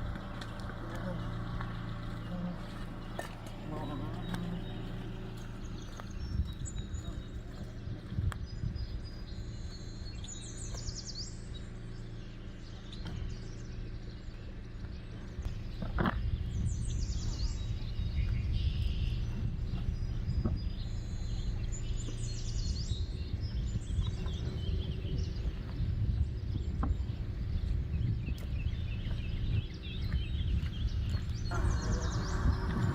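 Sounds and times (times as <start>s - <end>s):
songbird singing: 0.0s - 32.9s
steady low rumble: 0.0s - 32.9s.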